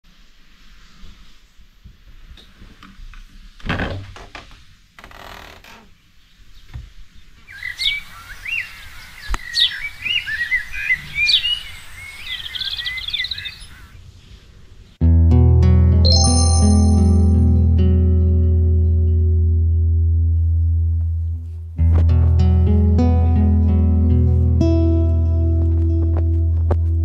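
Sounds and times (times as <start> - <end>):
small birds chirping and singing: 7.4 - 13.9.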